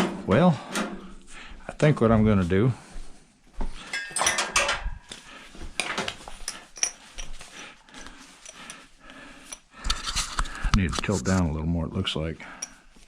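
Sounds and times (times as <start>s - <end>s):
metal clanking and clinking: 3.8s - 5.0s.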